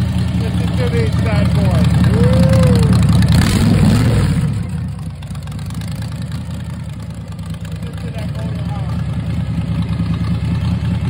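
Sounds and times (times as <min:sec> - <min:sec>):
engine revving: 0:00.0 - 0:06.5
engine idling: 0:00.0 - 0:11.0.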